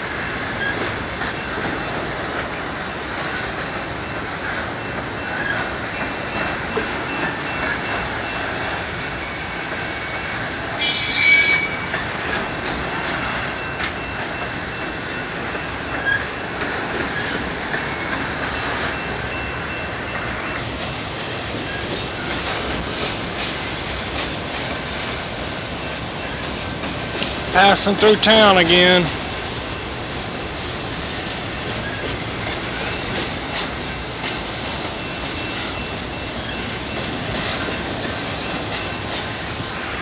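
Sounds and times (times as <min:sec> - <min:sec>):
train wheels rumbling and rattling: 0:00.0 - 0:40.0
high-pitched wheel squeal: 0:10.8 - 0:12.0.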